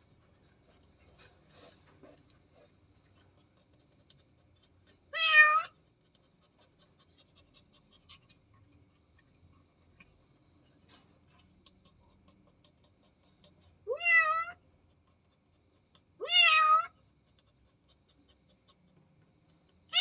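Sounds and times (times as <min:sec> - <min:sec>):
cat meowing: 0:05.1 - 0:05.8, 0:13.9 - 0:14.6, 0:16.2 - 0:17.0.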